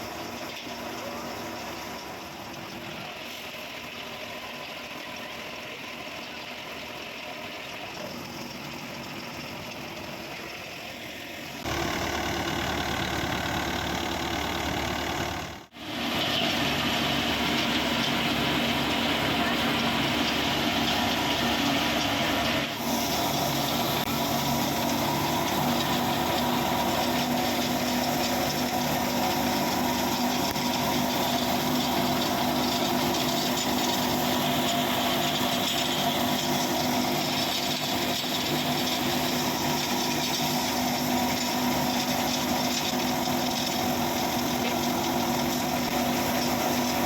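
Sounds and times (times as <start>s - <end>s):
tractor engine drone: 0.0s - 47.0s
thresher rattling: 11.6s - 47.0s.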